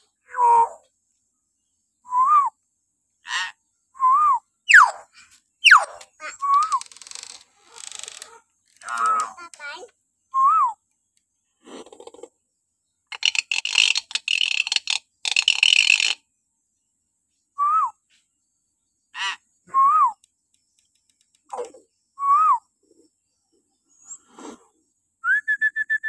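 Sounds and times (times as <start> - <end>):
myna bird screeching and whistling: 4.7 - 5.0, 5.6 - 8.2.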